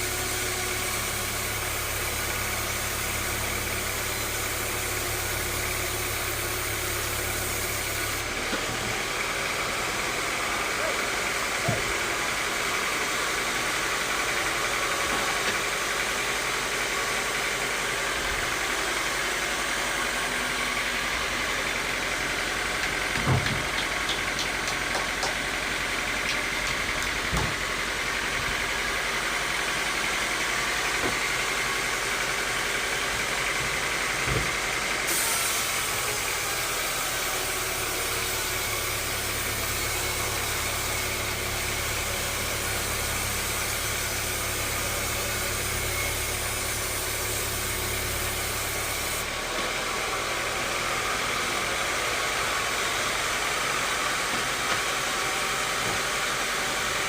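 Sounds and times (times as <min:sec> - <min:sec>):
sawmill machinery whining: 0:00.0 - 0:57.0
dull knocks: 0:23.1 - 0:25.4.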